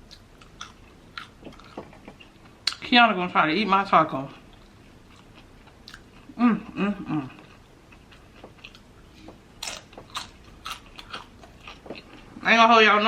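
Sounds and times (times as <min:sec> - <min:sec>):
person chewing food: 0:00.0 - 0:02.8, 0:04.4 - 0:12.4
person murmuring: 0:06.4 - 0:07.4.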